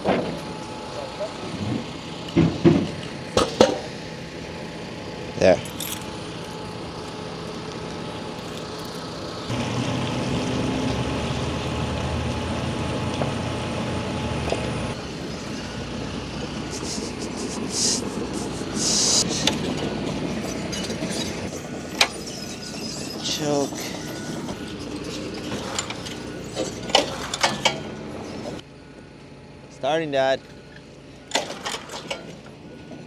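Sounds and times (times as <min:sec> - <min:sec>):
vehicle engine running: 0:00.0 - 0:31.3
short hisses: 0:16.6 - 0:19.8.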